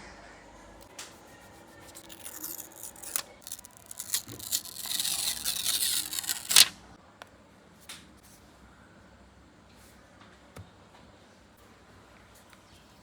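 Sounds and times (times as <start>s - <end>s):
rasping scraping: 1.3s - 6.7s.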